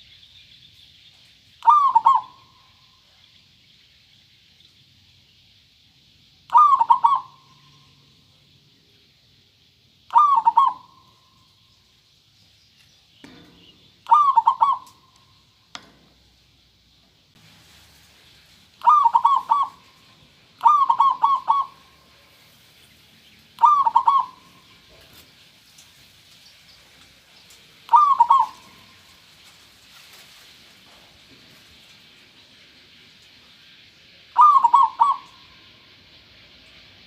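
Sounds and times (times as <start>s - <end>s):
dove cooing: 1.6s - 2.6s, 6.5s - 8.0s, 10.1s - 11.2s, 14.0s - 15.1s, 18.8s - 22.3s, 23.6s - 25.1s, 27.9s - 29.1s, 34.4s - 35.5s.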